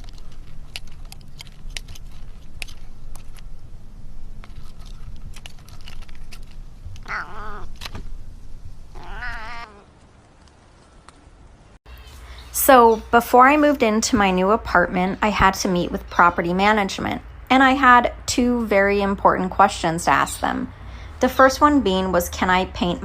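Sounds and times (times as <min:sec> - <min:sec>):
cat meowing: 0:07.0 - 0:07.8, 0:08.9 - 0:09.9.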